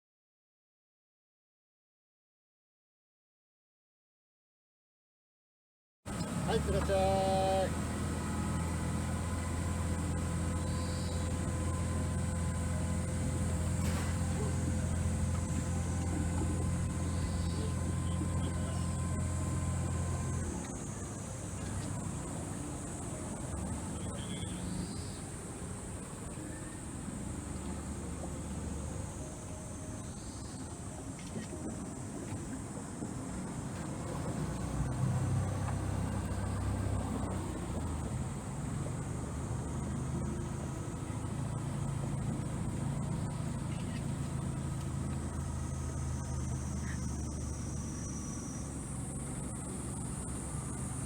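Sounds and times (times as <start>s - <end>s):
boat motor rumble: 6.1s - 51.0s.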